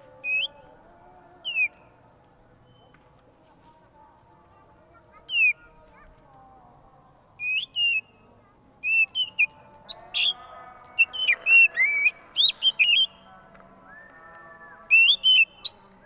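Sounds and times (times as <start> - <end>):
bird singing whistled notes: 0.0 - 0.7, 1.4 - 1.9, 2.6 - 3.0, 5.3 - 5.7, 7.4 - 8.2, 8.8 - 13.2, 13.8 - 16.0.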